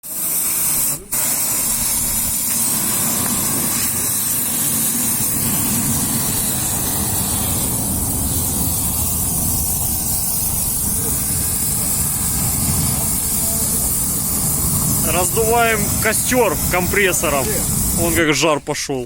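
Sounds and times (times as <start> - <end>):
compressed air hissing: 0.0 - 18.6
low rumble: 2.9 - 18.0.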